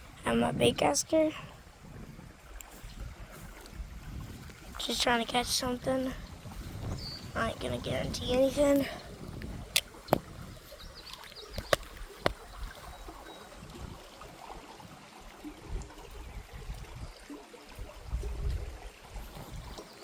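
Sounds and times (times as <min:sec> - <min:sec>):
creek water running: 0:00.0 - 0:20.0
sharp clicks: 0:11.1 - 0:12.4.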